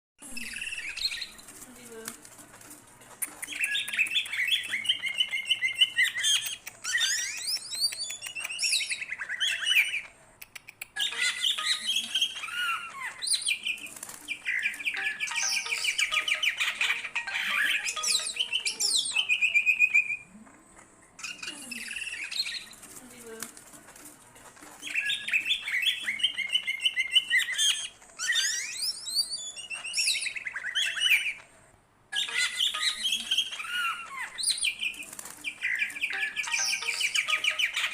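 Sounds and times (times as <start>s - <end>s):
bird singing chattering and whistling: 32.2s - 37.9s.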